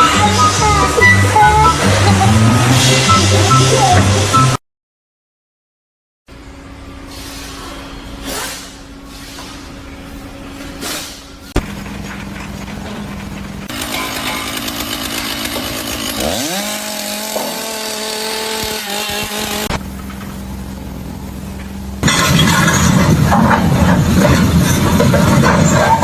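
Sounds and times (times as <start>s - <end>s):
motor revving with whine: 0.0s - 4.6s, 13.6s - 19.8s
rough rumbling machine noise: 0.0s - 4.6s, 6.3s - 26.0s
steady machine hum: 6.3s - 22.1s.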